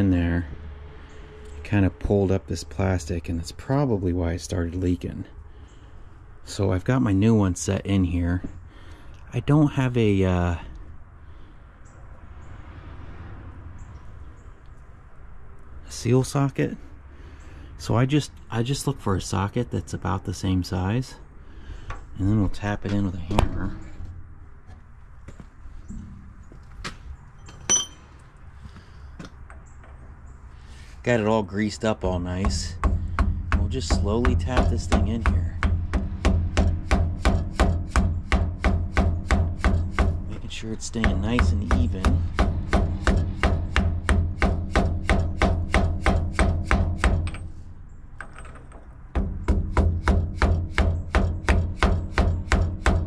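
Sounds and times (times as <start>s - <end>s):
metal hand tools clinking: 27.4s - 28.1s.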